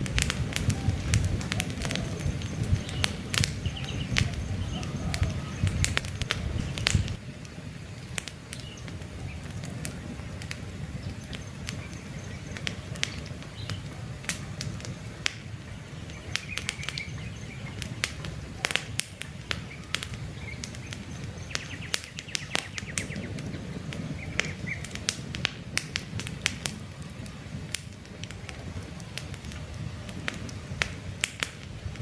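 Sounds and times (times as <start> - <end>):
campfire crackling and popping: 0.0 - 32.0
low rumble of flames: 0.0 - 32.0
faint bird chirps: 1.8 - 5.8.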